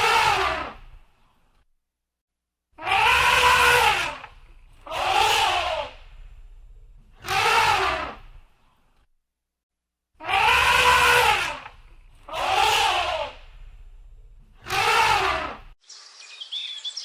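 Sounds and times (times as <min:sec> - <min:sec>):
animal harsh cry: 0:00.0 - 0:00.9, 0:02.8 - 0:06.3, 0:07.2 - 0:08.3, 0:10.2 - 0:13.7, 0:14.6 - 0:15.7.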